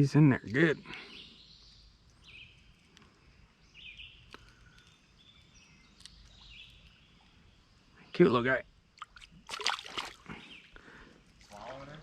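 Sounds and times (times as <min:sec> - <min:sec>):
soft high bird chirps: 0:00.8 - 0:09.5.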